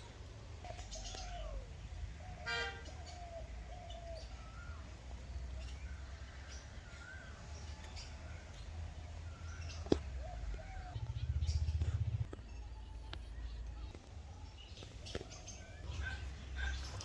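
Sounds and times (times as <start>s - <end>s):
birds calling with whistled notes: 0.0s - 17.0s
low steady rumble: 7.1s - 17.0s.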